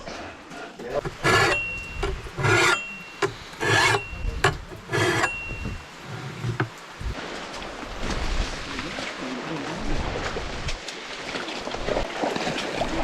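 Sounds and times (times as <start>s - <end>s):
rasping scrape strokes: 0.6s - 7.2s
thin ringing tone: 1.0s - 6.8s.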